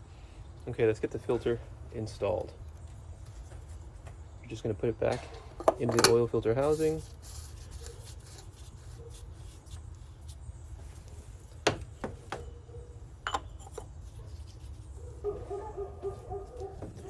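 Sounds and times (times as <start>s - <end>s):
light rubbing: 6.4s - 11.6s, 12.4s - 17.0s.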